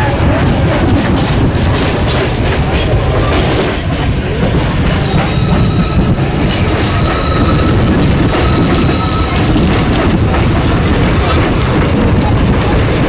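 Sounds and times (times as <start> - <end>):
train wheels rumbling on rail: 0.0 - 13.0
faint wheel squeal: 5.0 - 10.0.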